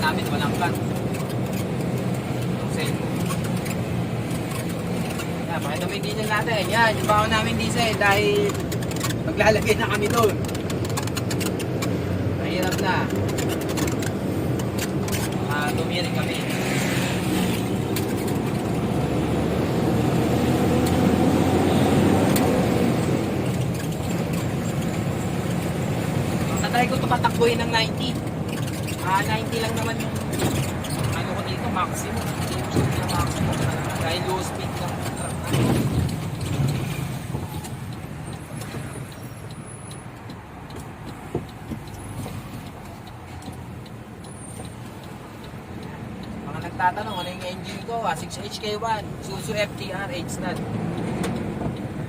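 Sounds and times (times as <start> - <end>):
diesel truck engine drone: 0.0 - 48.4, 49.0 - 52.0
truck diesel engine drone: 13.0 - 28.8
faint regular ticking: 22.3 - 52.0.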